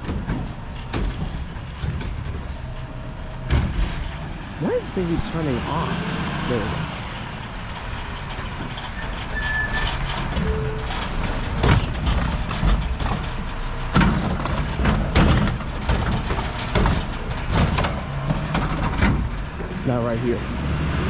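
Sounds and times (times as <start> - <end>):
loud clunks and knocks: 0.0 - 4.2, 11.2 - 19.8
recycling truck running: 0.0 - 21.0
high-pitched squeaks: 8.0 - 11.6.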